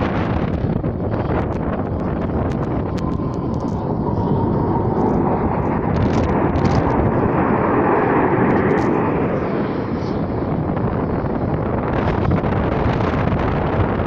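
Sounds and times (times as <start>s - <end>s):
military aircraft flying over: 0.0s - 14.0s.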